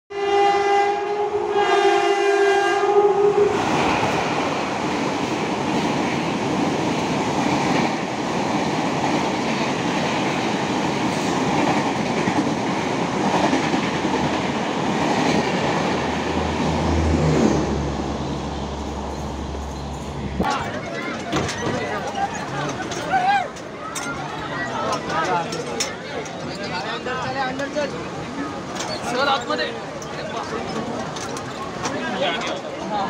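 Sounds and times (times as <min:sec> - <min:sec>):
train horn blast: 0:00.1 - 0:03.6
train rumble and wheel clatter: 0:00.2 - 0:33.0.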